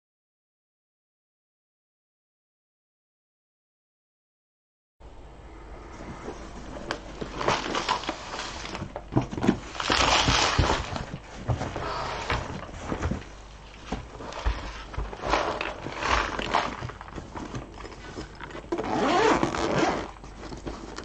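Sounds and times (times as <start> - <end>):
plastic packaging rustling: 6.3 - 21.0.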